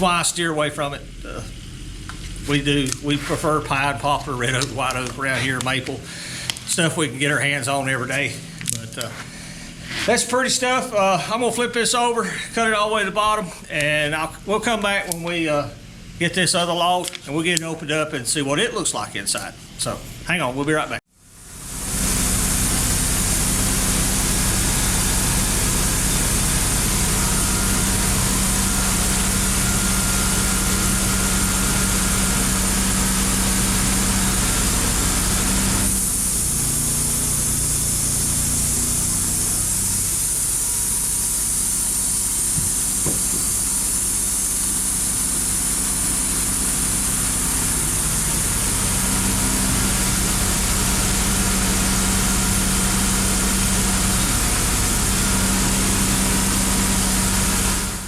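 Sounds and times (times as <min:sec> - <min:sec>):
engine running: 0:00.0 - 0:10.2, 0:21.2 - 0:58.0.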